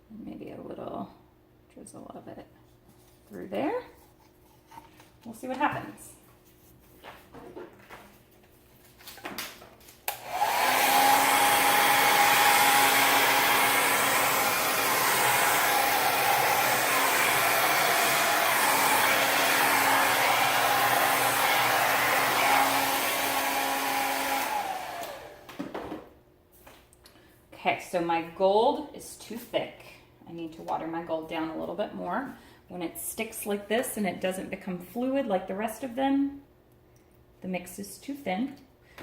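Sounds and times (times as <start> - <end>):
hair dryer blowing: 10.1 - 26.1.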